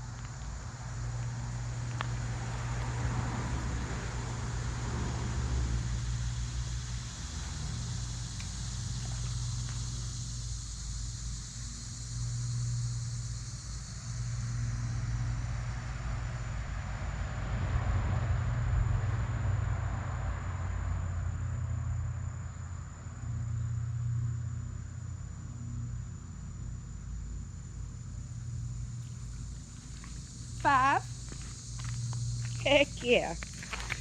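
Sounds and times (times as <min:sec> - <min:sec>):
motor engine rumble passing by: 0:00.0 - 0:10.6.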